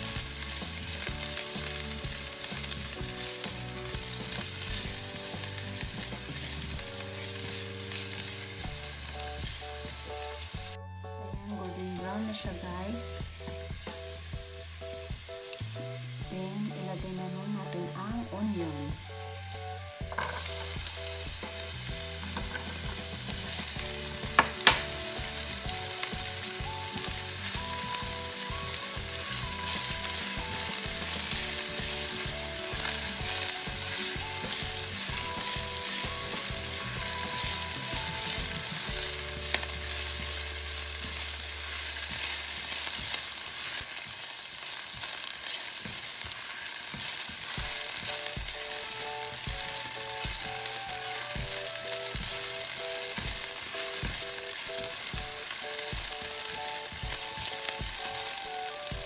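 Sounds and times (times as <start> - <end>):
onion sizzling in hot oil: 0.0 - 59.0
spatula stirring in pan: 20.0 - 59.0.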